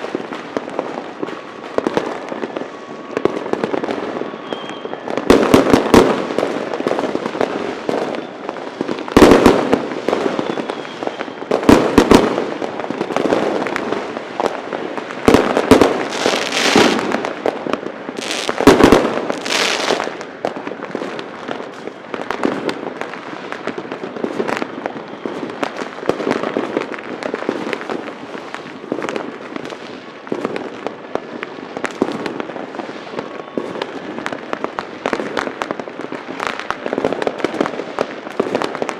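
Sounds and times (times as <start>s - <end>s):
loud firework reports: 0.0s - 30.8s
firecrackers banging: 0.0s - 38.9s
fireworks crackling: 0.0s - 38.9s
firework hissing: 15.1s - 20.4s.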